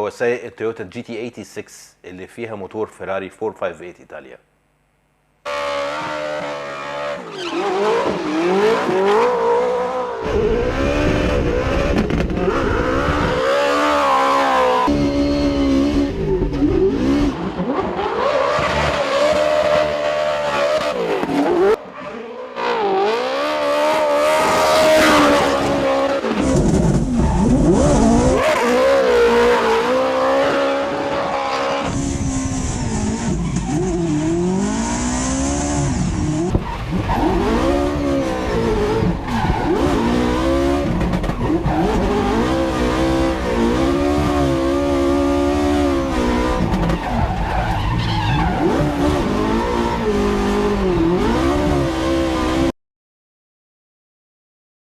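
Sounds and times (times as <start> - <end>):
car engine revving: 5.5 - 21.8, 22.7 - 52.7
tyres squealing and skidding: 5.6 - 10.8, 11.4 - 14.9, 36.5 - 42.6, 46.5 - 49.1.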